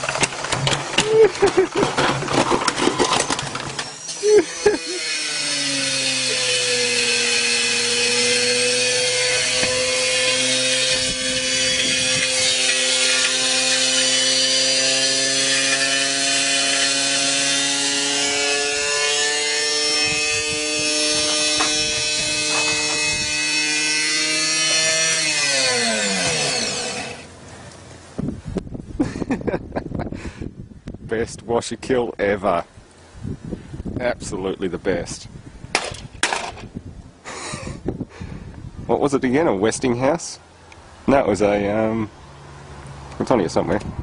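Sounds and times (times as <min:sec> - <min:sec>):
washing machine motor whining: 0:03.0 - 0:27.3.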